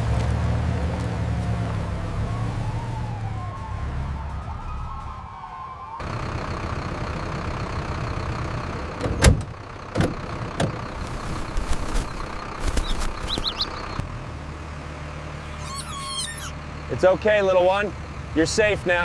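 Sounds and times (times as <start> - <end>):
vehicle engine running: 6.0 - 19.0
short high squeaks: 15.4 - 16.6.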